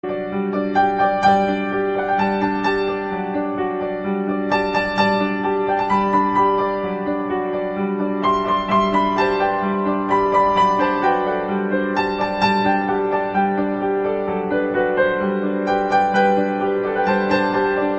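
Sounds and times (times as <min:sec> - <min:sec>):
slow gentle piano melody: 0:00.0 - 0:17.9.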